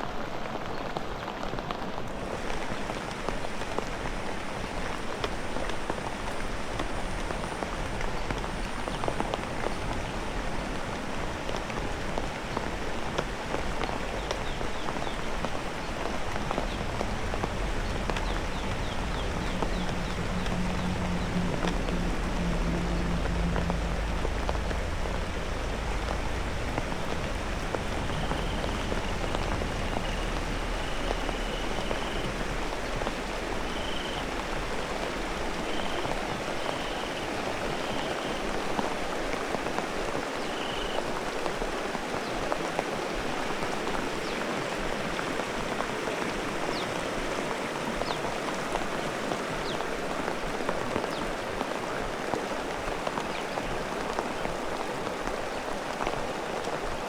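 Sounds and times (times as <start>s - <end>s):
heavy rain pouring: 0.0s - 57.0s
low rumble: 14.2s - 36.7s.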